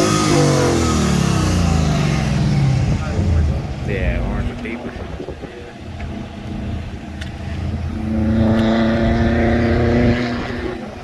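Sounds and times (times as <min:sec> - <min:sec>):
car engine running and revving: 0:00.0 - 0:11.0.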